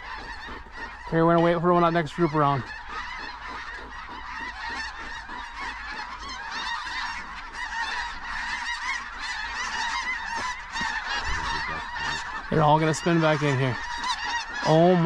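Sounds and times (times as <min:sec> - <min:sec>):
flock of geese honking: 0:00.0 - 0:15.0
low wind rumble: 0:10.2 - 0:14.2.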